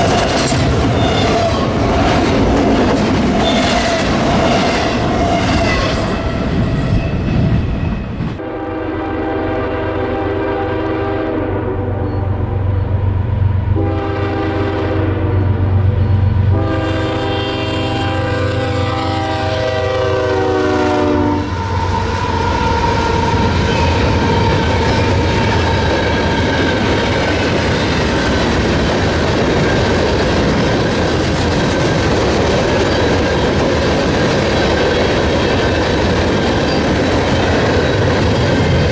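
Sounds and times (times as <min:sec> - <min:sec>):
train wheel and rail noise: 0:00.0 - 0:38.9
locomotive chime horn: 0:05.4 - 0:13.1, 0:13.7 - 0:25.8
locomotive engine drone: 0:09.2 - 0:20.5, 0:21.4 - 0:38.9.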